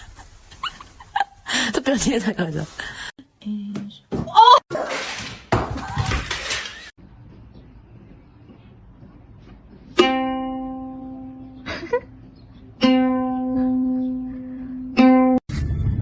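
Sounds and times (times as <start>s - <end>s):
plucked string notes: 10.0s - 11.7s, 12.7s - 15.4s.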